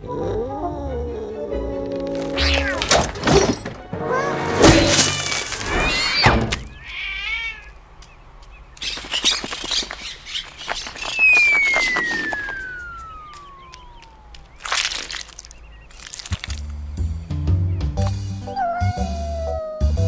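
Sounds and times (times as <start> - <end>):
warbling cry: 10.4 - 15.1.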